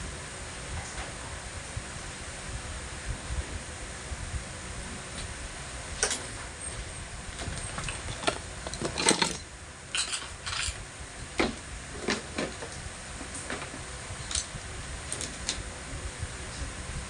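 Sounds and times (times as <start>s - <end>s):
small hard objects clinking: 7.6s - 10.8s.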